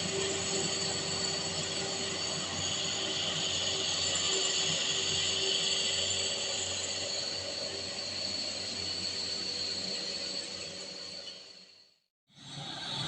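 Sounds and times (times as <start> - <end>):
high-pitched whine: 0.0 - 11.8.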